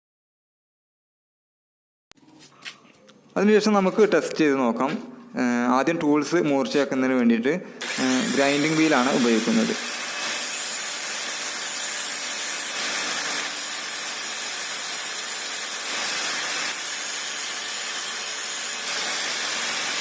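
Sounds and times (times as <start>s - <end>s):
grinder sharpening a tool: 7.8s - 20.0s.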